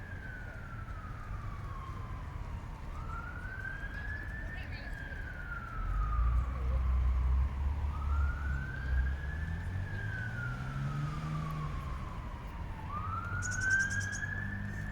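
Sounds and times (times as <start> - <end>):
traffic rumble: 5.7 - 14.9
siren wailing: 7.9 - 14.9.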